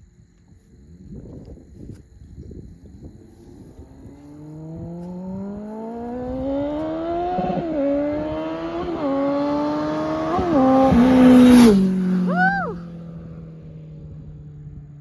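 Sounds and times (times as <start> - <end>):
motorcycle engine accelerating hard: 2.6 - 15.0.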